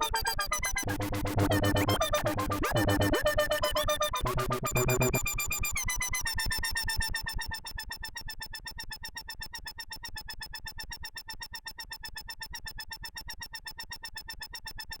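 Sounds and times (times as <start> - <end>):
pulsing synthesizer tone: 0.0 - 8.2.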